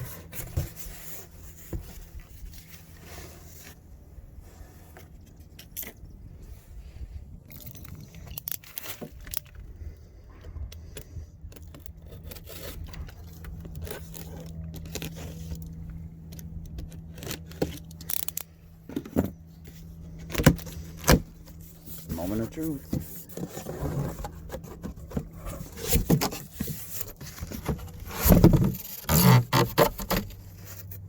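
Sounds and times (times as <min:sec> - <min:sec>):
cardboard boxes tearing and rustling: 0:00.0 - 0:03.8, 0:20.2 - 0:31.0
low steady hum: 0:00.0 - 0:31.0.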